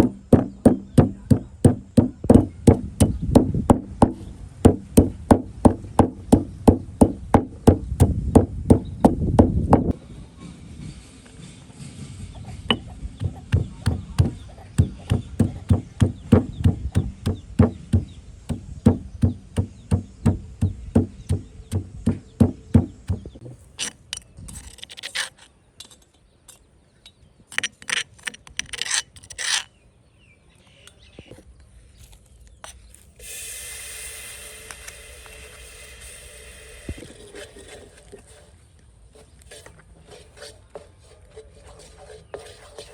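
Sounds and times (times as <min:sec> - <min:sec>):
knife chopping on cutting board: 0:00.0 - 0:09.9, 0:12.7 - 0:23.4
scraping strokes: 0:11.4 - 0:26.0, 0:32.7 - 0:42.9
steady hiss: 0:33.1 - 0:38.7.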